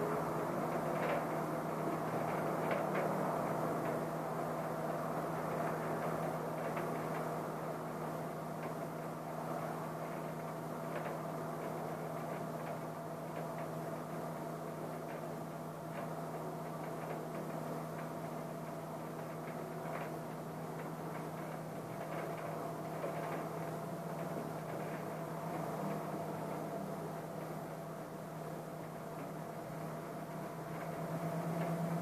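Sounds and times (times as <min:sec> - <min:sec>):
rain behind a window: 0:00.0 - 0:32.0
raindrop ticks: 0:06.0 - 0:07.3, 0:15.9 - 0:26.6.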